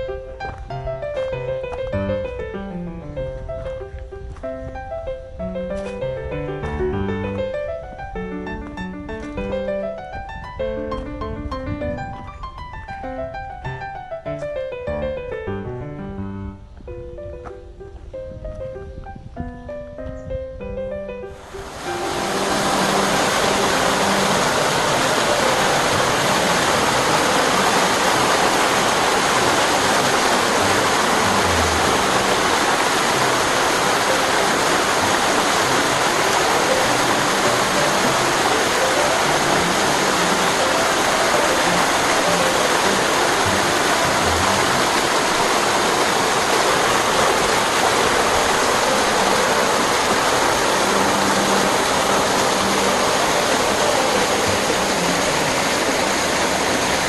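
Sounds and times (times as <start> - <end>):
waterfall pouring and splashing: 21.3 - 57.0.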